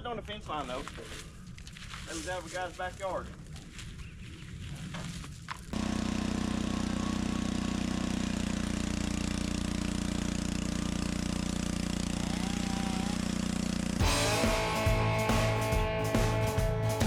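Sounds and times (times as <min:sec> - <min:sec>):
sawmill engine running: 0:05.8 - 0:17.0.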